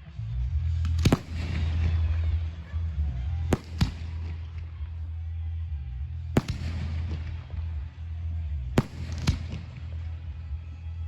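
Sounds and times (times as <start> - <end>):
faint fireworks crackle: 0.0 - 11.0
steady low rumble: 0.0 - 11.0
fireworks bangs: 3.5 - 4.8, 6.4 - 7.9, 8.8 - 10.3.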